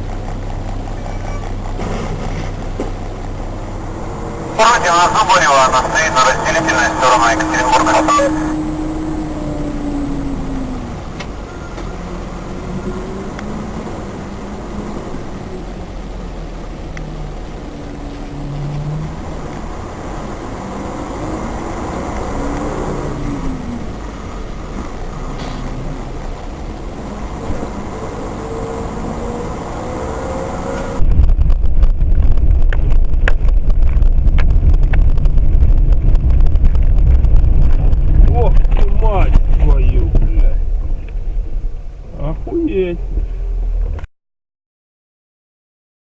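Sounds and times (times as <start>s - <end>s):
low rumble with crackles: 0.0s - 27.9s, 30.7s - 44.1s
car engine hum: 0.0s - 44.1s
road noise: 0.0s - 44.1s.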